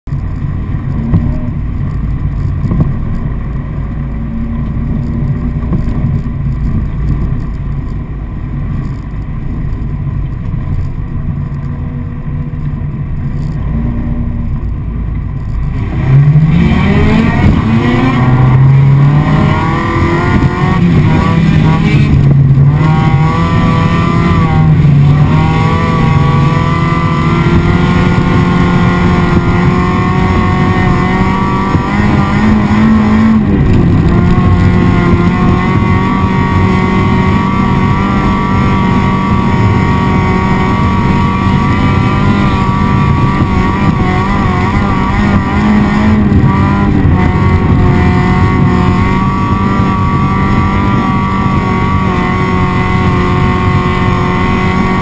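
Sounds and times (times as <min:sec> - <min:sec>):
race car engine accelerating: 0:15.4 - 0:55.0.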